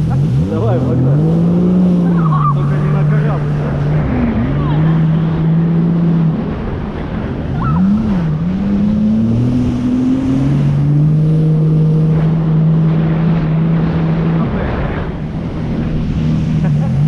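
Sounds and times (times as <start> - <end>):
jet ski engine running: 0.0 - 17.0
water noise: 0.0 - 17.0.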